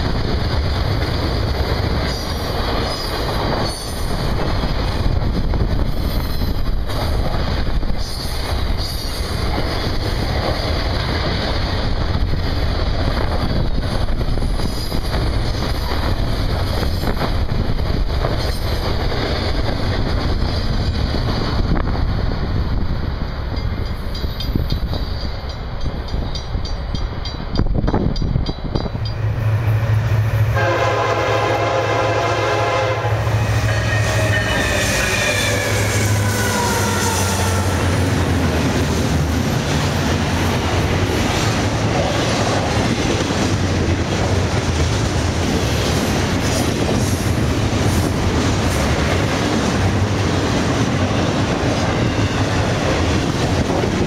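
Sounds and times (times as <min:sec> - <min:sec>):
crossing bell ringing: 0:23.5 - 0:29.6, 0:33.4 - 0:37.8
locomotive engine drone: 0:28.7 - 0:54.0
train horn chord: 0:30.0 - 0:37.9
freight cars rumbling and clacking: 0:33.5 - 0:54.0.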